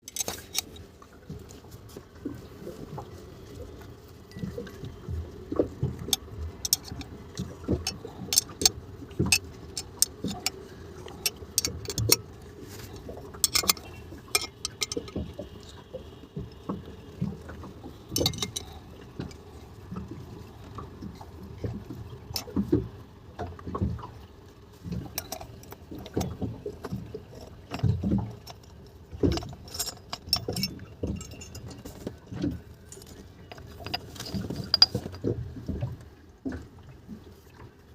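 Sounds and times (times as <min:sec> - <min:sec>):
metal tools clicking and clinking: 0:00.0 - 0:00.8, 0:06.1 - 0:07.1, 0:07.8 - 0:08.7, 0:09.3 - 0:10.6, 0:11.2 - 0:12.2, 0:13.4 - 0:15.2, 0:18.2 - 0:18.8, 0:25.2 - 0:26.2, 0:27.7 - 0:32.2, 0:32.9 - 0:35.2
steady low hum: 0:00.0 - 0:37.9.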